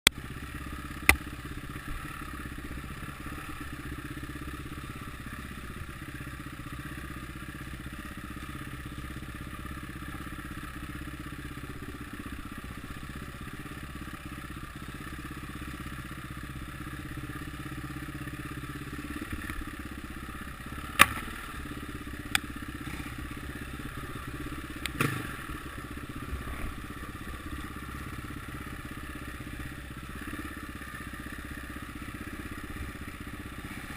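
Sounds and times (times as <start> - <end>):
distant motorcycle engines: 0.1 - 33.9.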